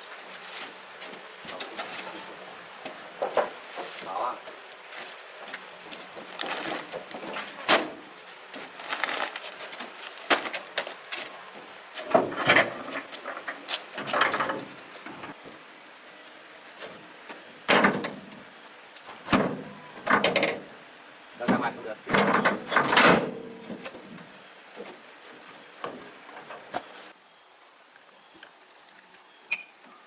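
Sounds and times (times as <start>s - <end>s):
objects clattering and scraping: 1.5s - 5.2s, 8.6s - 15.5s, 16.7s - 18.5s, 19.1s - 20.7s, 21.4s - 27.1s.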